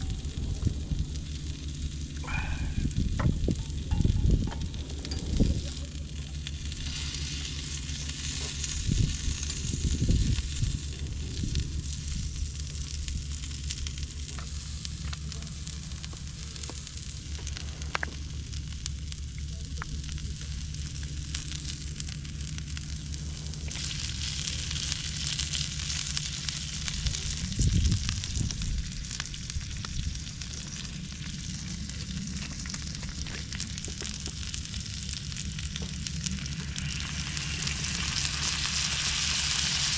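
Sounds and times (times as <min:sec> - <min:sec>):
low bumps: 0:00.0 - 0:20.1
food sizzling on grill: 0:00.0 - 0:39.9.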